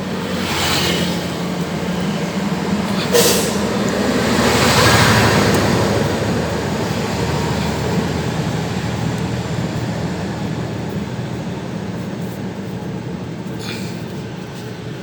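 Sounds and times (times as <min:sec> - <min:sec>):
engine hum: 0:00.0 - 0:15.0
vehicle passing: 0:00.0 - 0:15.0
short hiss: 0:03.0 - 0:03.6.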